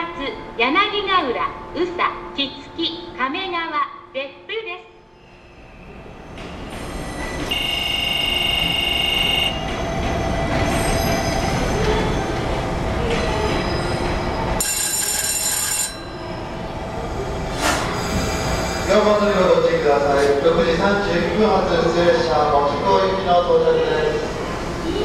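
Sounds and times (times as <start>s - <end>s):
train rumbling on rails: 5.1s - 25.0s.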